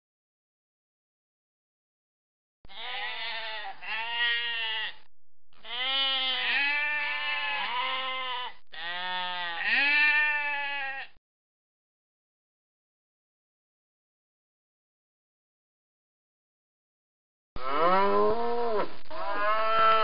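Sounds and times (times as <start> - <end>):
sheep bleating: 2.7 - 11.2, 17.6 - 20.0.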